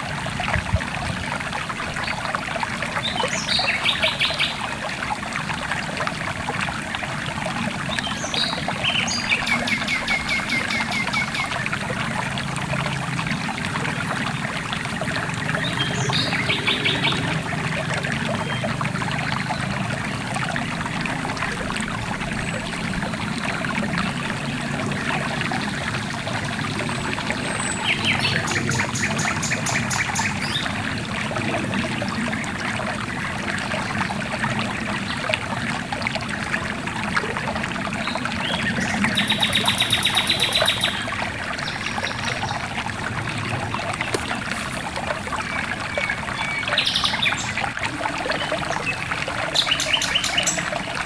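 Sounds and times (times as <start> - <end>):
river water trickling: 0.0 - 51.0.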